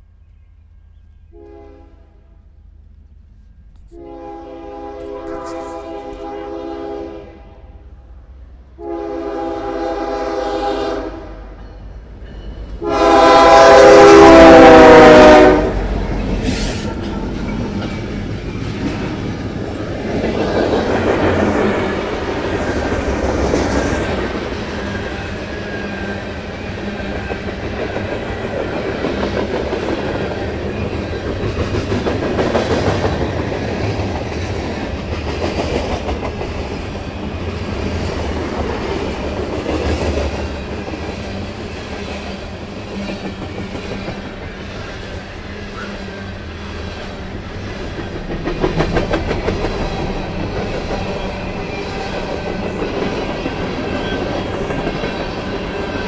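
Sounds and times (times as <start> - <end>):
freight cars rumbling on rails: 7.6 - 56.0
clickety-clack over rail joints: 15.9 - 46.0, 46.9 - 56.0.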